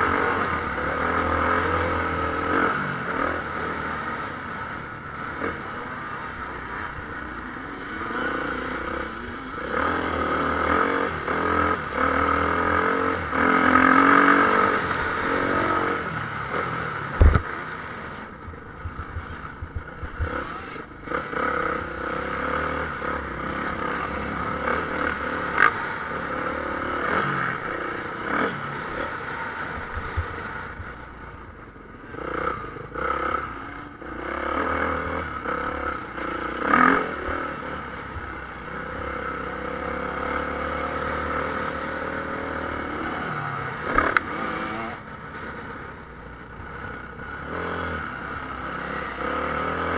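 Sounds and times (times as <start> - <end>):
motocross bikes revving: 0.0 - 49.9
sharp thump: 17.2 - 17.5.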